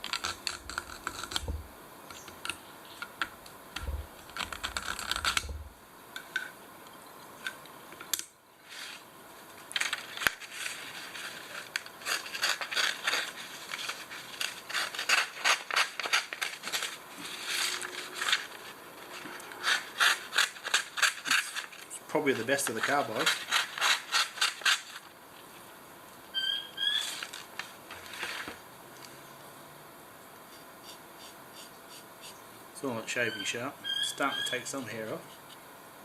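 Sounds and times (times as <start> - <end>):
knife scraping on carbide sharpener: 0.0 - 1.6, 11.3 - 21.8, 22.7 - 25.0, 30.5 - 32.4.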